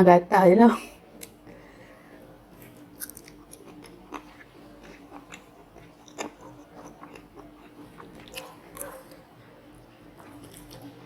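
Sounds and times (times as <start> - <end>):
person chewing crunchy food: 2.5 - 9.3, 10.1 - 11.0.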